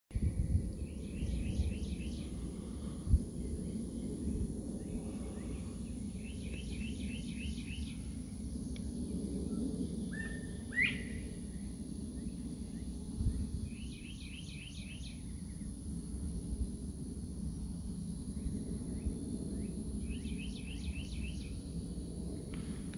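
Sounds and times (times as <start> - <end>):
low background rumble: 0.1 - 14.4
birds singing: 0.6 - 15.8, 18.3 - 21.8
sharp rising bird call: 10.1 - 11.3.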